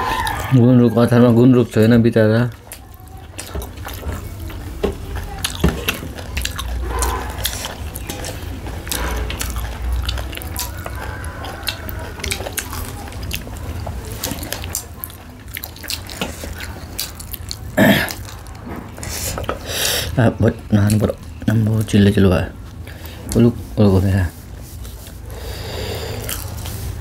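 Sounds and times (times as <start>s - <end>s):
wet chewing and lip-smacking: 1.7s - 19.7s, 24.5s - 27.0s.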